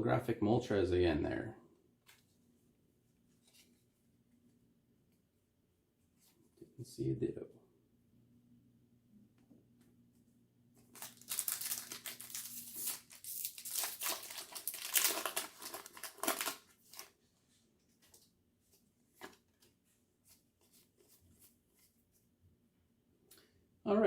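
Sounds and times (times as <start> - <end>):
foil wrapper crinkling and tearing: 10.8 - 17.2.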